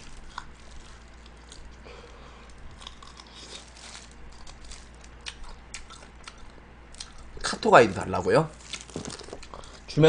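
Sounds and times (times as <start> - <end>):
chewing crispy fried chicken: 0.0 - 7.5, 8.5 - 9.8.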